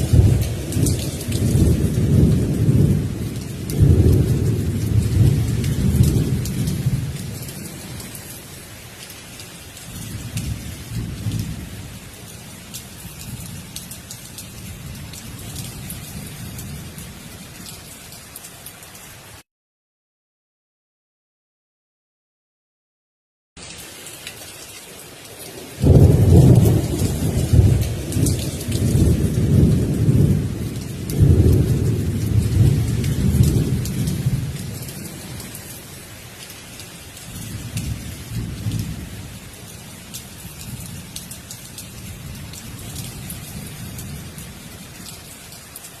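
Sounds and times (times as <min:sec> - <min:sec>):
thunder rumbling: 0:00.0 - 0:08.1, 0:25.8 - 0:35.6, 0:37.2 - 0:39.4
steady rain falling: 0:00.0 - 0:19.4, 0:23.6 - 0:46.0.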